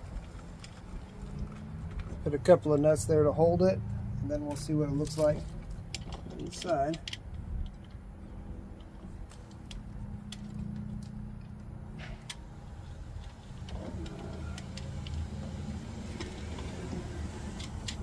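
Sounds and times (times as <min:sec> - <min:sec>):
light metallic clicks of nuts: 0:05.0 - 0:08.0.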